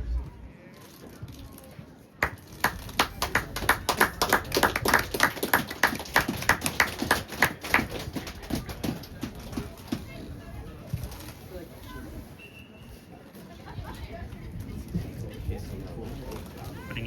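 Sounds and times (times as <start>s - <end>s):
hand clapping: 2.2s - 9.7s.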